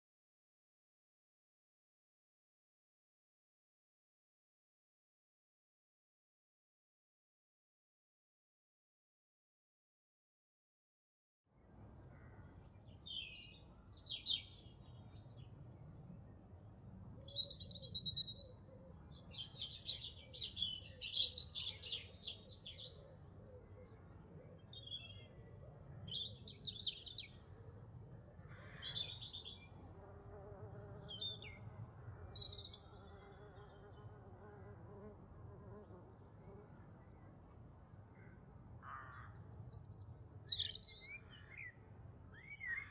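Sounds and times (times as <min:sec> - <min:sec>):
songbirds chirping: 0:11.6 - 0:42.9.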